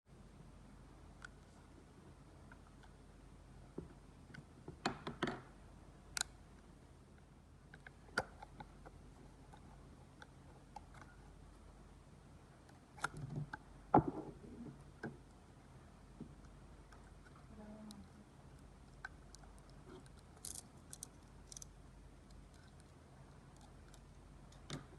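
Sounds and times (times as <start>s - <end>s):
small plastic clicks: 18.9s - 21.7s.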